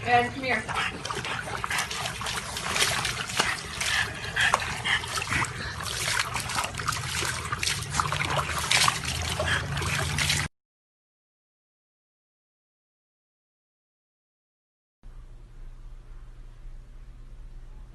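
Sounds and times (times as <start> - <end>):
water splashing and trickling: 0.0 - 10.5.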